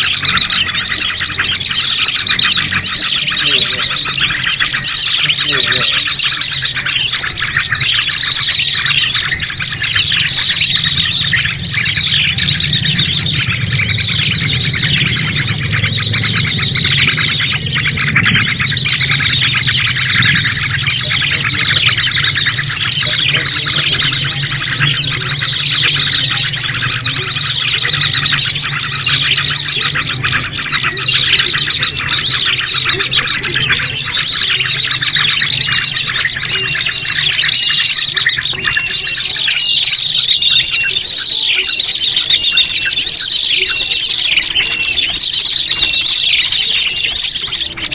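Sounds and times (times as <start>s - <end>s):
small birds chirping: 0.0s - 47.9s
steady low hum: 9.0s - 34.8s.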